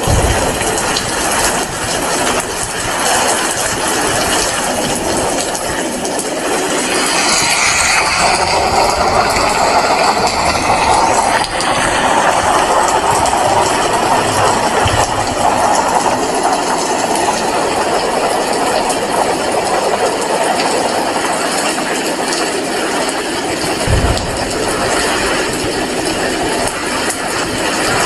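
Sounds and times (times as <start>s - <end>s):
low thump: 0.0s - 2.6s, 23.6s - 27.0s
heavy rain falling: 0.0s - 28.0s.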